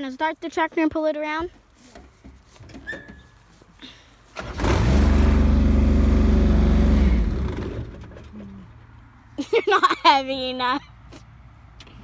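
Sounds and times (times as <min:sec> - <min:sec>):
tractor engine starting and stopping: 0:04.3 - 0:08.6.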